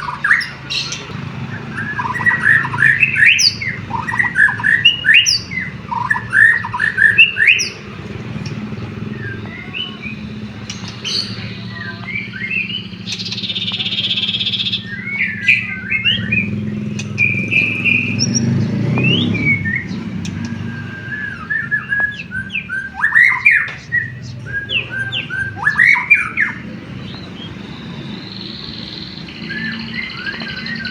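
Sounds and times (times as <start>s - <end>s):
bird singing chirps and whistles: 0.0s - 30.9s.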